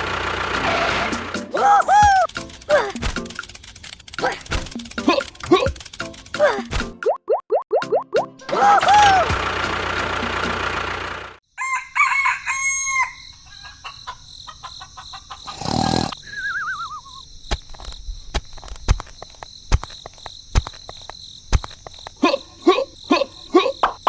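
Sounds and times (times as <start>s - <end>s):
sharp clicks: 1.4s - 7.1s
rooster crowing: 11.5s - 15.9s
warbling falling whistle: 16.2s - 17.2s.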